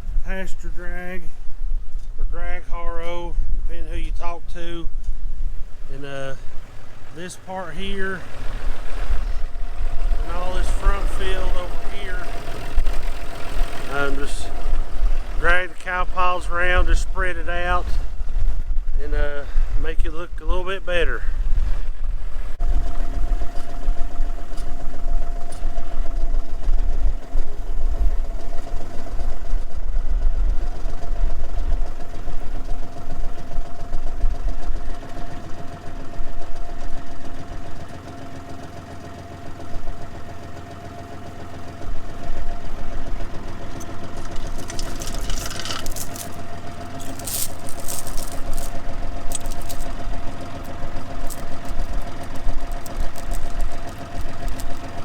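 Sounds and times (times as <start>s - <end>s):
tractor diesel engine running: 0.0s - 55.0s
wind buffeting microphone: 12.4s - 20.4s, 21.0s - 34.9s
sharp clicks or rattles: 43.7s - 55.0s.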